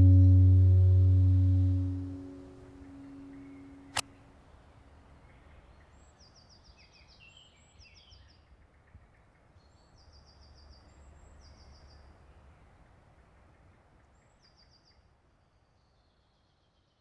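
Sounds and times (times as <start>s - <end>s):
low outdoor rumble: 0.0s - 4.0s.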